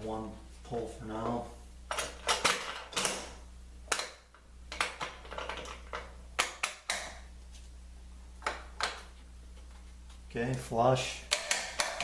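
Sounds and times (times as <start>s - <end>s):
faint steady hum: 0.0s - 12.0s
wooden parts knocking: 8.4s - 9.1s.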